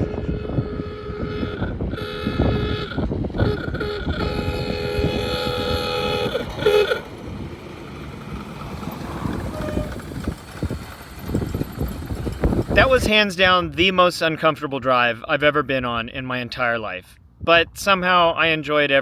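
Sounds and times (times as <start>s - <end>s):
wind buffeting: 0.0s - 14.4s
road rumble: 0.0s - 14.8s
car driving at speed: 2.8s - 12.8s.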